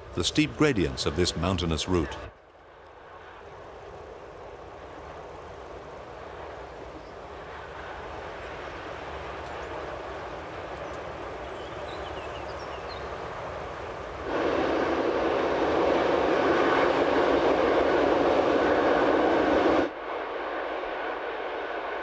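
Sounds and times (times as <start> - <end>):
electric train running: 14.2 - 20.3.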